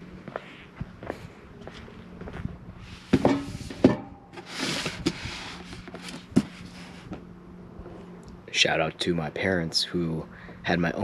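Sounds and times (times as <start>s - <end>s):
faint steady hum: 0.0s - 11.0s
rubbing rustling slide: 4.4s - 7.2s.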